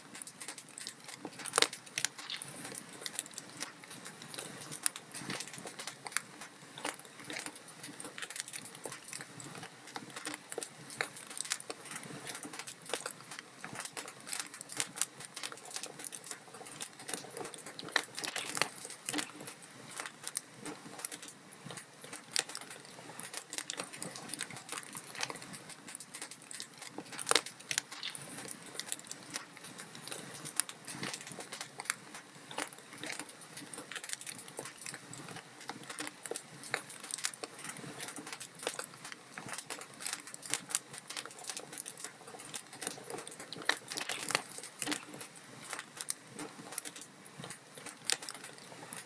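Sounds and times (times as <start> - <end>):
log fire crackling: 0.0 - 49.0.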